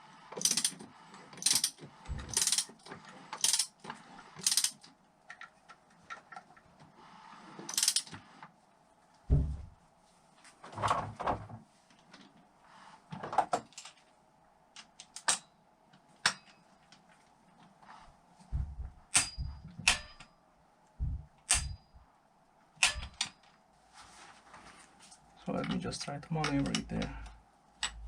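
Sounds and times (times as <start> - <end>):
metal parts and tools clanking: 0.4 - 4.8, 18.5 - 20.3, 22.8 - 23.4.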